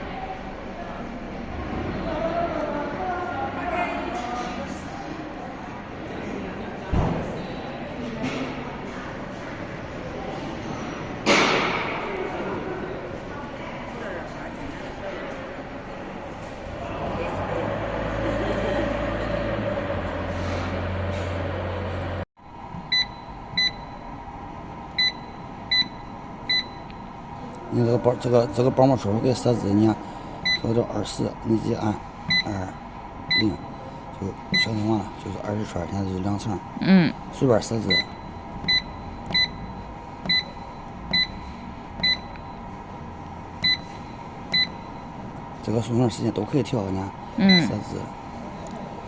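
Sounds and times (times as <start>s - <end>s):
baler machine humming: 17.0s - 49.0s
short electronic beeps: 22.9s - 24.1s, 37.8s - 42.6s, 43.6s - 45.1s, 47.4s - 47.8s
short high beeps: 47.4s - 47.8s.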